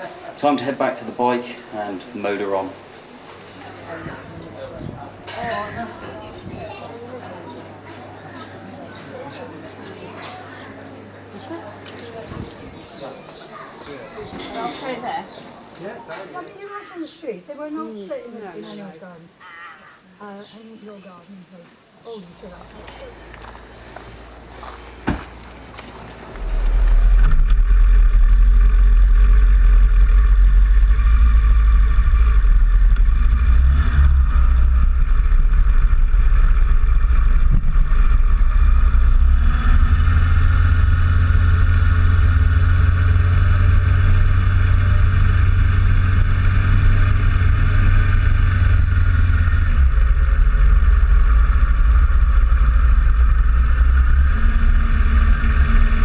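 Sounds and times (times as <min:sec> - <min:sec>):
motorcycle engine and road noise: 0:23.3 - 0:56.0.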